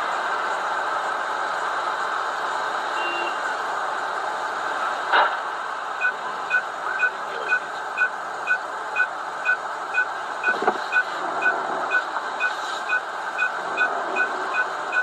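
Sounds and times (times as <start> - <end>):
vehicle and road noise: 0.0 - 15.0
vehicle warning beeps: 2.9 - 3.5, 6.0 - 15.0.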